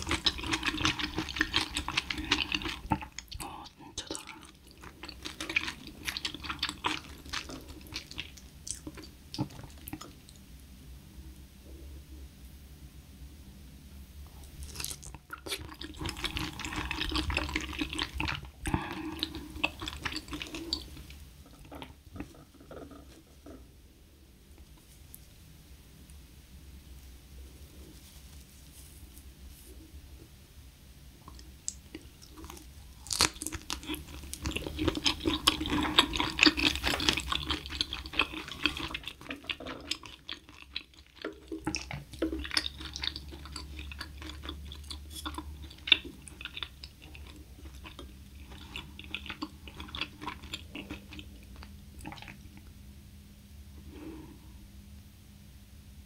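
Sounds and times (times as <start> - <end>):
chewing and crunching food: 0.0 - 10.4, 14.5 - 23.7, 31.2 - 52.8.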